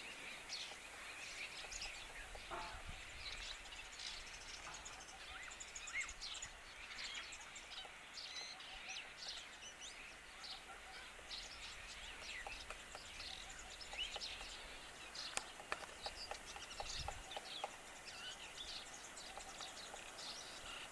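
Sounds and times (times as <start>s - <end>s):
birds chirping: 0.0s - 20.9s
woodpecker pecking at wood: 12.0s - 17.8s.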